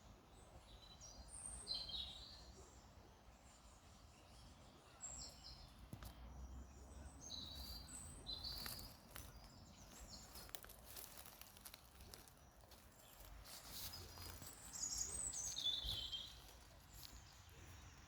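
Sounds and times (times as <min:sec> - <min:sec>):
bird chirps: 0:06.8 - 0:18.0.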